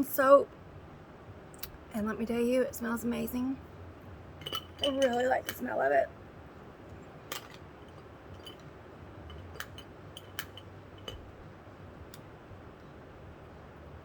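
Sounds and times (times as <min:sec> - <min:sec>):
low steady hum: 0:00.0 - 0:14.0
small objects clicking and tapping: 0:07.3 - 0:11.3.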